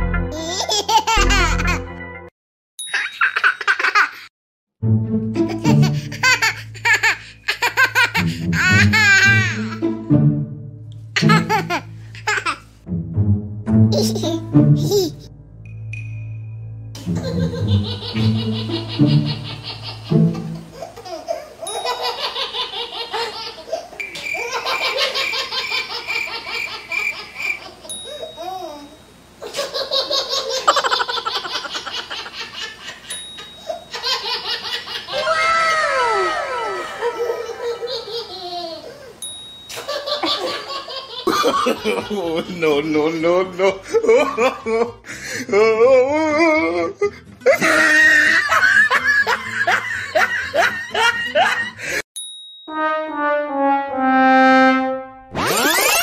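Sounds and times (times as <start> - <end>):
quick laughing bursts: 13.9 - 15.2
falling cries: 35.1 - 38.0, 47.5 - 48.6
hearty human laughter: 35.8 - 39.1, 40.2 - 42.6, 43.6 - 52.0
descending sad trombone phrase: 52.8 - 55.3.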